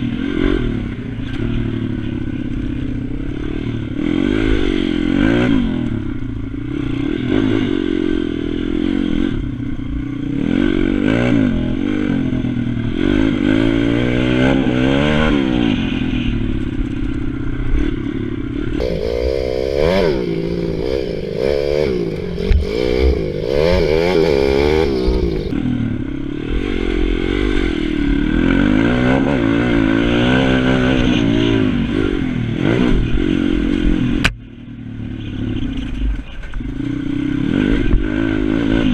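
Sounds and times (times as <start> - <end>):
small motorbike engine revving: 18.6 - 25.8.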